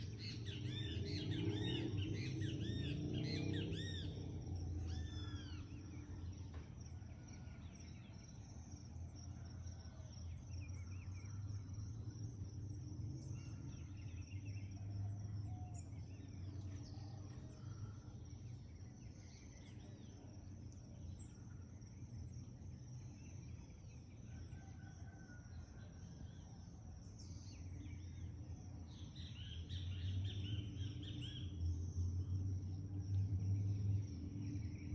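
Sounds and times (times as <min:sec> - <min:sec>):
birds calling and singing: 0:00.0 - 0:06.8, 0:28.9 - 0:34.9
low background rumble: 0:00.0 - 0:23.7, 0:27.9 - 0:34.9.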